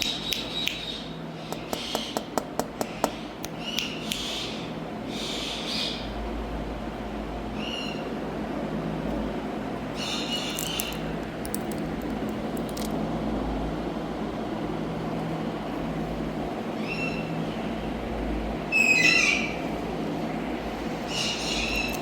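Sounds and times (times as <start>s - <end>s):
steady background hum: 0.0s - 22.0s
parrot high calls: 18.7s - 19.6s.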